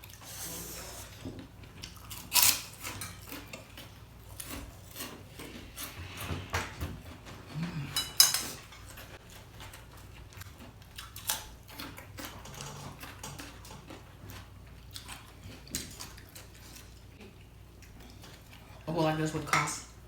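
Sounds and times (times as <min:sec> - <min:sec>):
chewing: 0:01.0 - 0:18.9
utensils tapping dishes: 0:07.8 - 0:08.9.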